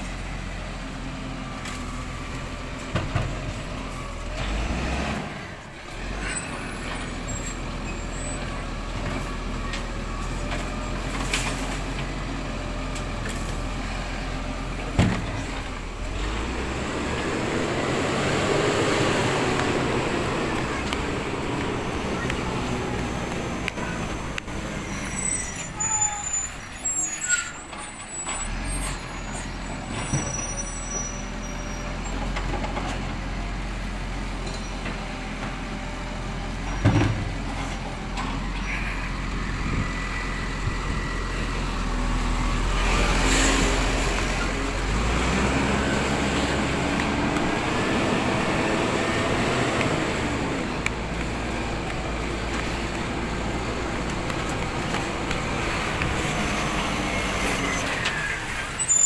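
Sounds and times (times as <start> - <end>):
truck diesel engine running: 11.8 - 25.3, 32.2 - 58.8.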